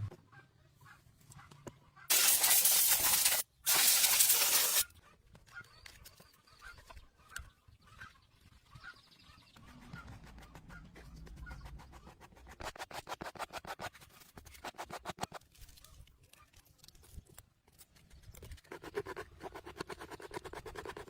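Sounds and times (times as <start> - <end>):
hissing spray bursts: 2.1 - 4.8.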